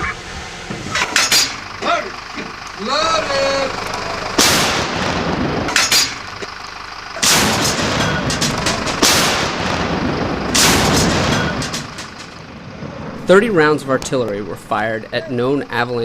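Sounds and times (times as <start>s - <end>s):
long rolling echo: 0.1s - 16.0s
tank guns firing heavy booms: 3.6s - 6.4s, 7.2s - 13.1s.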